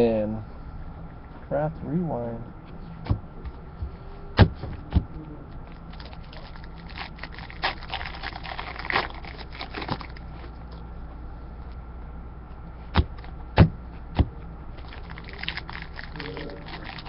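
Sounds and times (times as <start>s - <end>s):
cards and packaging rustling: 5.7s - 10.6s, 14.8s - 17.0s.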